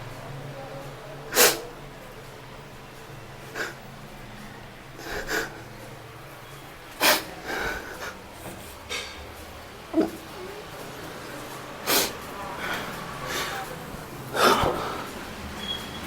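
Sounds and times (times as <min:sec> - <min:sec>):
person sniffing sharply: 0:01.3 - 0:01.7, 0:03.5 - 0:03.8, 0:05.0 - 0:05.6, 0:07.0 - 0:08.6, 0:11.8 - 0:13.7.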